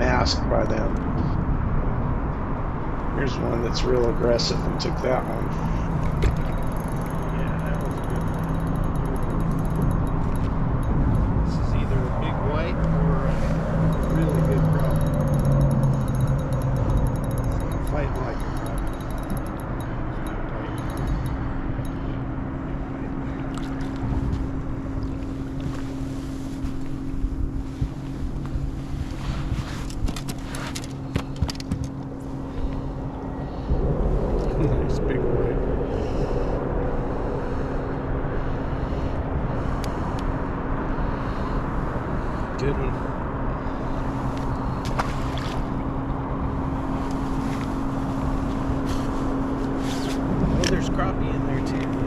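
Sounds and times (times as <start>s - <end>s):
boat low hum: 0.0s - 52.0s
boat motor humming: 3.2s - 29.0s
small clicks: 13.9s - 21.4s
wind buffeting microphone: 31.0s - 44.9s.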